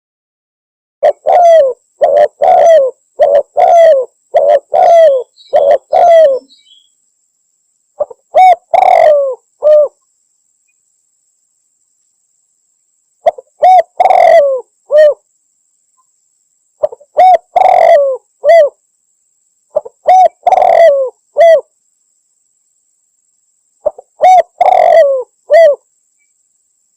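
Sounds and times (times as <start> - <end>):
dove cooing loudly: 1.0 - 6.5, 8.0 - 10.0, 13.2 - 15.2, 16.8 - 18.8, 19.7 - 21.7, 23.8 - 25.8.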